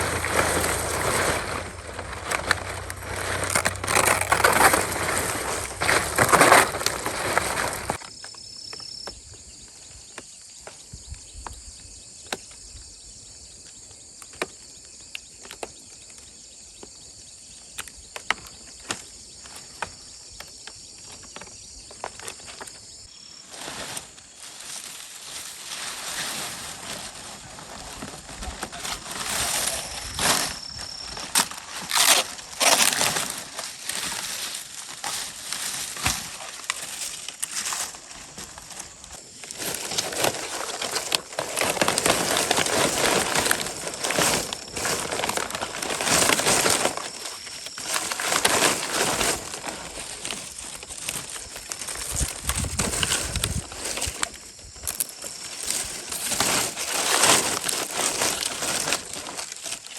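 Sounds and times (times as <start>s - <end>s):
rustling and crunching: 0.0s - 8.1s, 21.0s - 59.9s.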